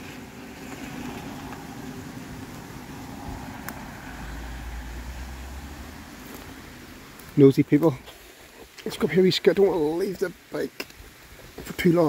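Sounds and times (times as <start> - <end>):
vehicle passing rumble: 0.0 - 7.4.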